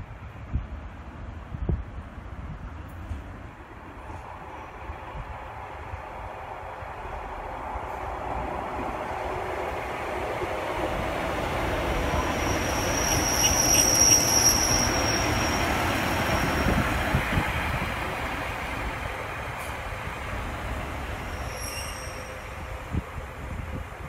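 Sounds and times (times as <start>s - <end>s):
diesel train rumbling past: 0.1s - 24.0s
high wheel squeal: 12.0s - 16.8s, 21.2s - 22.5s.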